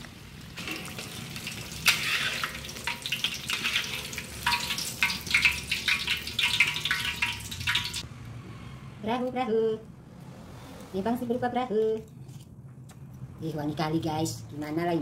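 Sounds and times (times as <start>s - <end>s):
food deep-frying in hot oil: 0.0s - 8.0s
oil dripping from a strainer: 2.5s - 8.0s.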